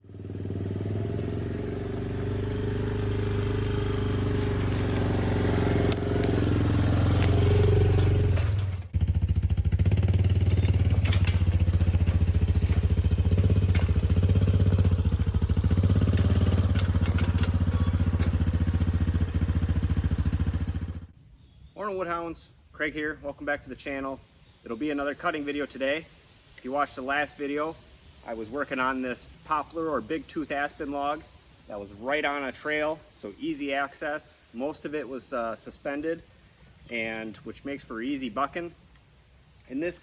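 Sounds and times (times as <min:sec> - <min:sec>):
small petrol engine running: 0:00.0 - 0:21.1.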